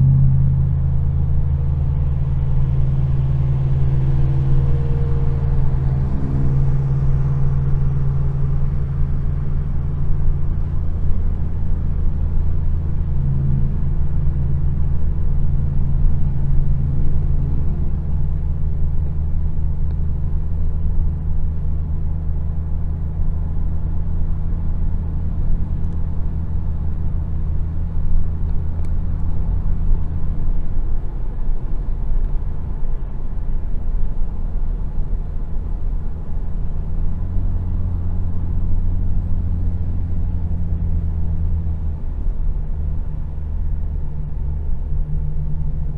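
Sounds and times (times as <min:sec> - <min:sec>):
car engine running: 0:00.0 - 0:45.9.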